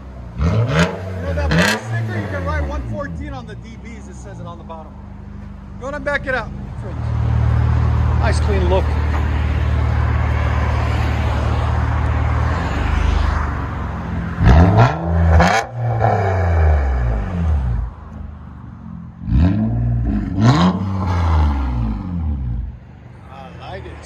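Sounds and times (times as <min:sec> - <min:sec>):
engine revving: 0:00.4 - 0:03.5, 0:07.0 - 0:17.9, 0:18.8 - 0:22.8.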